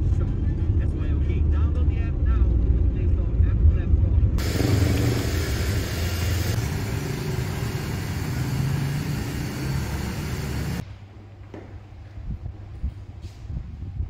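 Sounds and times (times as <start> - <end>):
car engine idling: 4.4 - 10.8
street noise hiss: 4.4 - 11.7.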